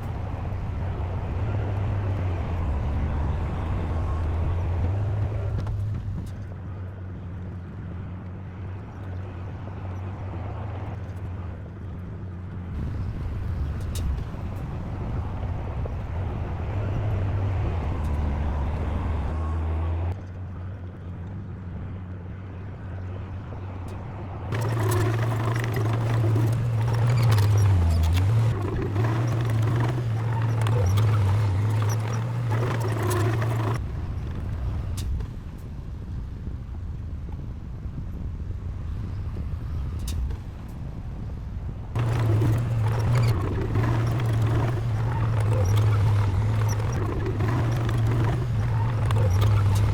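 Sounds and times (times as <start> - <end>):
heavy diesel engine droning: 24.5 - 33.8, 42.0 - 49.9.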